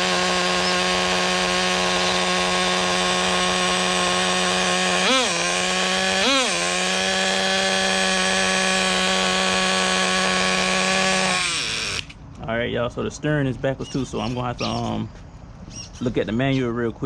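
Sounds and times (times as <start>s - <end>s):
small nitro engine idling: 0.0s - 12.2s
engine throttle blips: 0.0s - 12.5s.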